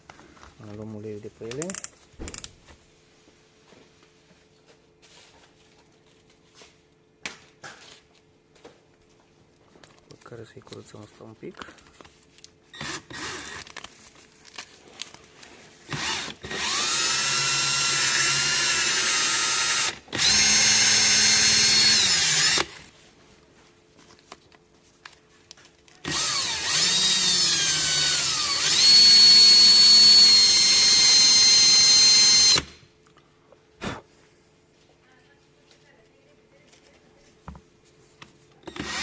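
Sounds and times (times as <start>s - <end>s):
power tool whining: 12.8s - 13.7s, 15.9s - 22.9s, 26.0s - 32.8s, 38.6s - 39.0s.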